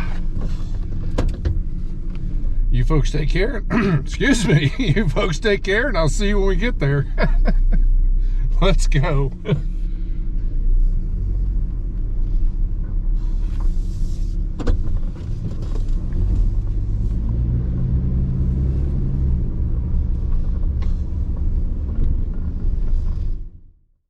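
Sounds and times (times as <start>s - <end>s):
pickup truck driving off: 14.7s - 23.0s.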